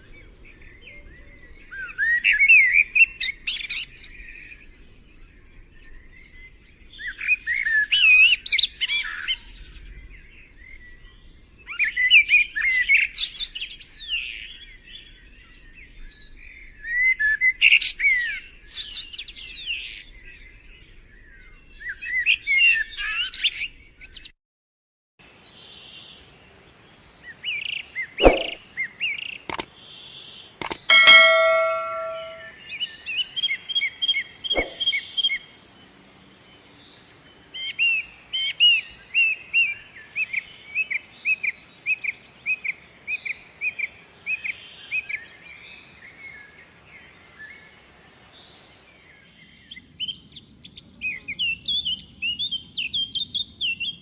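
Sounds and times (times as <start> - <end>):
sharp click: 28.2 - 28.6, 30.6 - 32.5
songbird chirping: 30.6 - 32.5.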